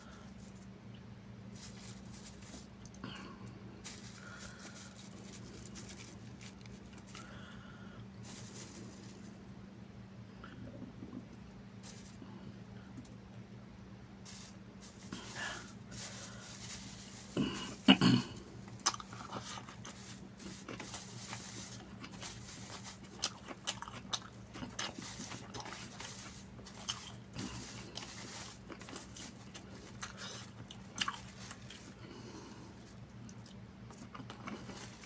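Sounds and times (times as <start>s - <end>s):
faint low hum: 0.0s - 35.0s
chewing and mouth clicks: 18.8s - 20.0s, 23.0s - 25.9s, 28.7s - 31.8s, 33.1s - 34.8s.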